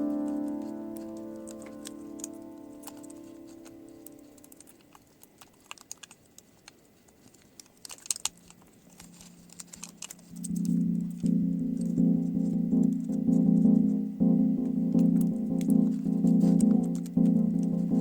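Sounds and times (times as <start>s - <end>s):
background music chord: 0.0s - 4.6s, 9.1s - 18.0s
laptop parts clicking: 1.0s - 11.3s.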